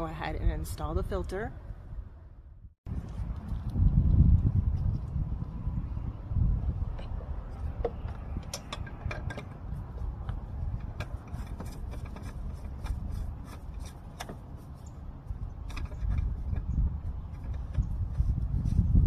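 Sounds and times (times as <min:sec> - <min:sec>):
steady low rumble: 0:00.0 - 0:19.0
light clicks taps and scraping: 0:06.9 - 0:14.6.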